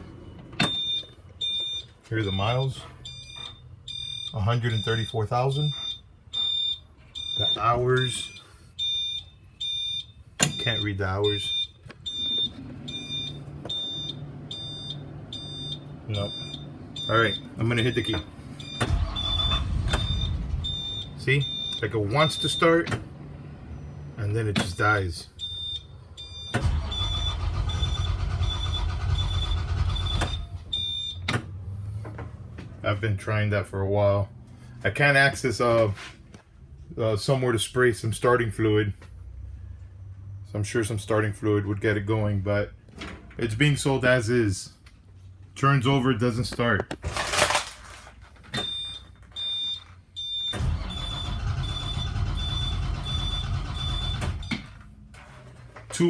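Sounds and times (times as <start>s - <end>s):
dashboard warning buzzer beeping: 0.6s - 22.9s, 48.6s - 54.7s
diesel engine cranking: 10.3s - 33.2s, 46.4s - 56.0s
bus engine cranking on starter: 18.4s - 21.0s, 26.3s - 32.0s, 50.4s - 55.5s.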